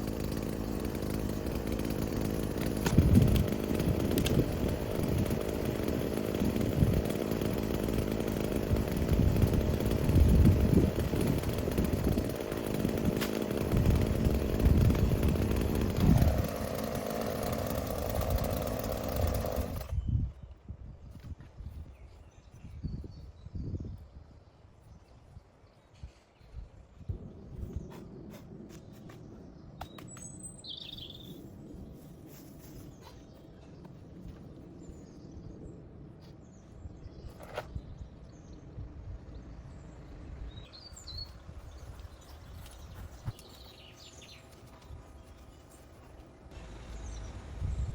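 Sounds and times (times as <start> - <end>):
chainsaw cutting tree: 0.0 - 20.0
outdoor background rumble: 0.0 - 23.0, 25.4 - 47.9.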